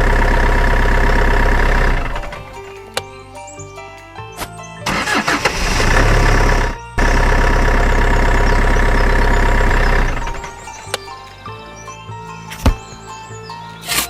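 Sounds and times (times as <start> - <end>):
small engine cranking and running: 0.0 - 2.7, 4.9 - 10.7
background music: 0.0 - 14.0.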